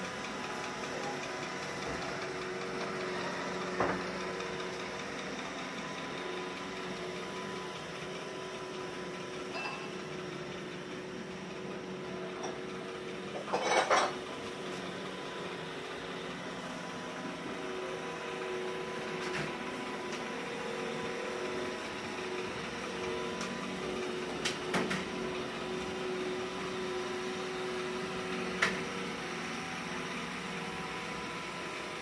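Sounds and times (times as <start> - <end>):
robot vacuum whirring: 14.2 - 32.0.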